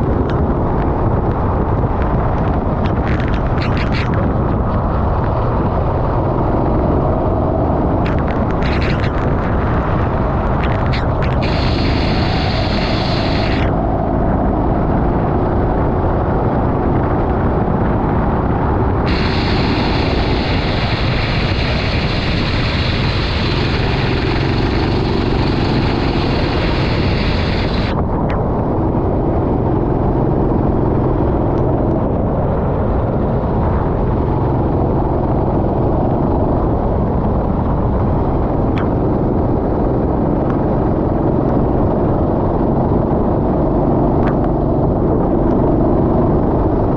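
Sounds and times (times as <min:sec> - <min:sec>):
kart engine running hard: 0:19.0 - 0:28.0.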